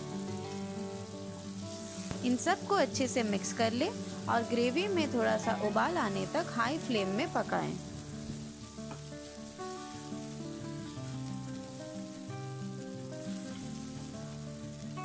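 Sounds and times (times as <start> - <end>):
paste sizzling in a pan: 0.0 - 15.0
slow instrumental music: 0.0 - 15.0.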